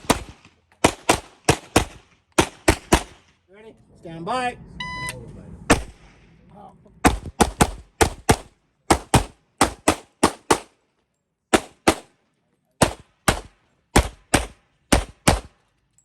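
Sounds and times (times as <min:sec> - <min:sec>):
pistol shots in quick doubles: 0:00.0 - 0:03.4, 0:07.0 - 0:10.8, 0:11.5 - 0:12.2, 0:12.8 - 0:15.6.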